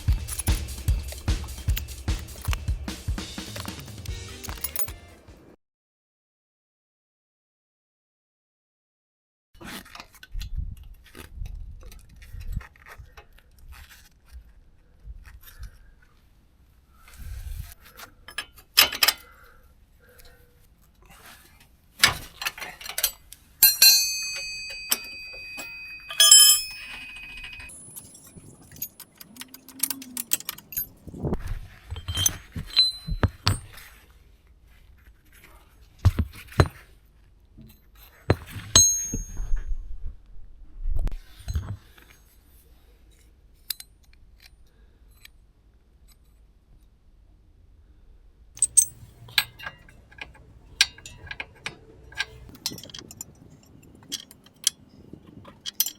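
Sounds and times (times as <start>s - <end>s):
metal tools clinking: 0.0s - 2.6s, 4.4s - 5.0s, 22.0s - 33.9s, 38.3s - 39.7s, 48.6s - 55.9s
struck metal ringing: 23.6s - 28.2s, 32.0s - 33.8s, 38.3s - 39.7s, 48.6s - 53.2s.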